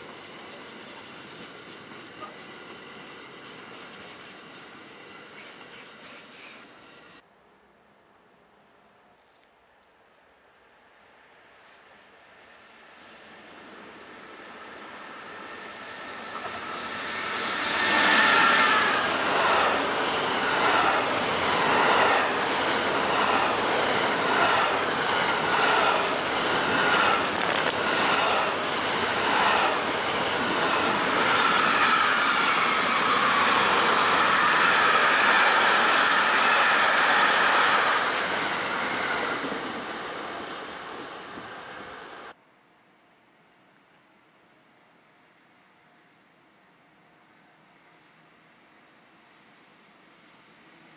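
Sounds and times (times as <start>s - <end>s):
train wheels clattering on rails: 0.0s - 7.2s, 16.2s - 40.1s.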